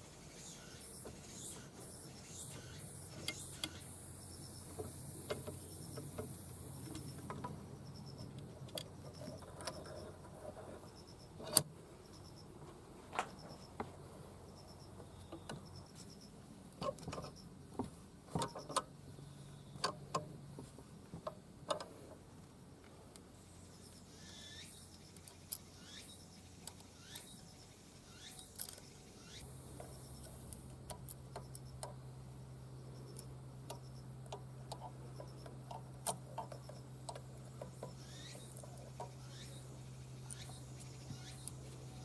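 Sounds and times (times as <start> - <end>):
low steady hum: 0.0 - 42.0
metal parts and tools clicking: 33.1 - 39.1.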